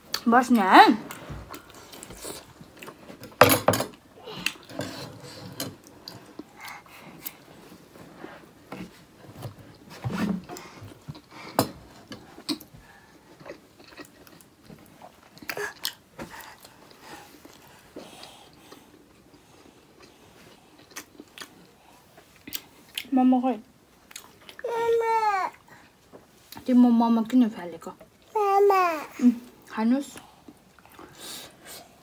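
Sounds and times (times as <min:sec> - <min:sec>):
dumplings being bitten and chewed: 0:13.4 - 0:16.1.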